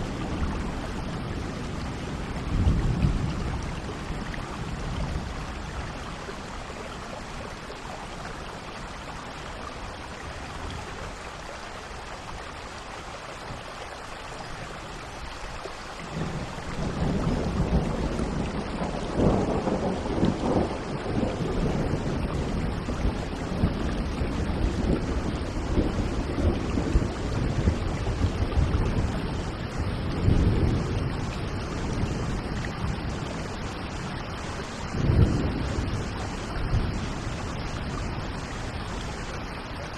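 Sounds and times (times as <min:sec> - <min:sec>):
steady rainfall: 0:00.0 - 0:39.9
thunder rumbling: 0:16.1 - 0:39.1.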